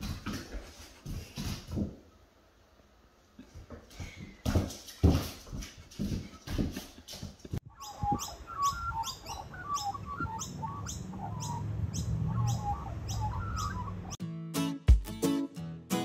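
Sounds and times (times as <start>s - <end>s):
birds chirping: 6.2s - 14.2s
high repeated bird call: 7.6s - 14.2s
music: 14.2s - 16.0s.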